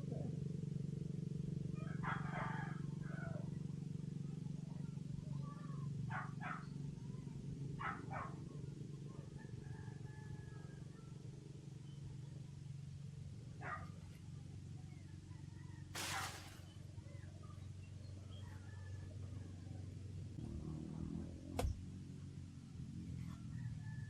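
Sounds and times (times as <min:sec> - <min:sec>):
brief hiss: 0:16.0 - 0:16.8.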